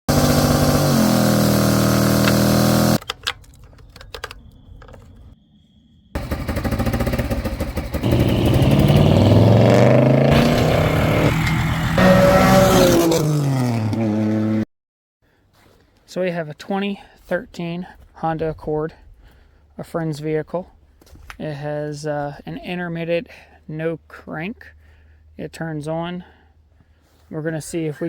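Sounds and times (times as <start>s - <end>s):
engine revving: 0.1s - 3.0s, 6.2s - 14.6s.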